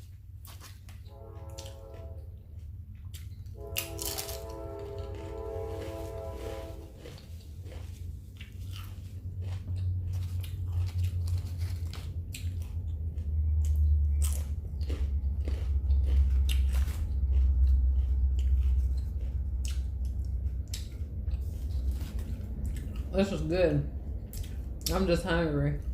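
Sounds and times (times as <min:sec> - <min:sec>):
crunchy sandwich bites: 0:03.2 - 0:04.5, 0:06.9 - 0:20.9
wet chewing mouth clicks: 0:06.9 - 0:23.1.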